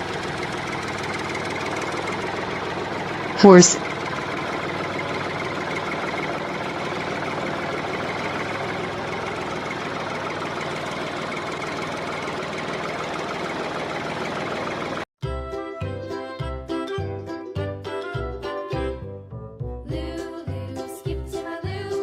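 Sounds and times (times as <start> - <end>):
tractor engine idling: 0.0 - 15.1.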